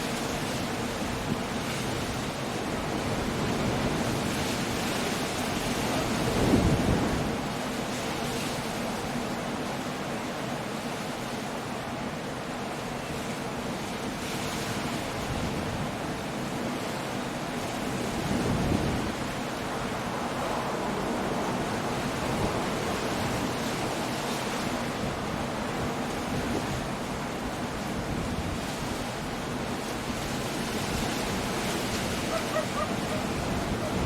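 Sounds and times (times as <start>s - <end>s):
wind: 0.0s - 34.0s
waves breaking on rocks: 14.1s - 34.0s.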